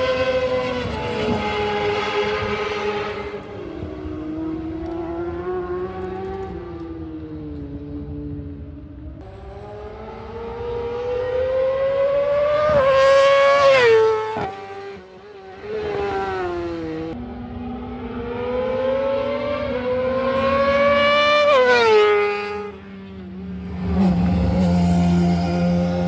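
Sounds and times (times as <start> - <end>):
racing motorcycle engine revving: 9.2 - 22.8.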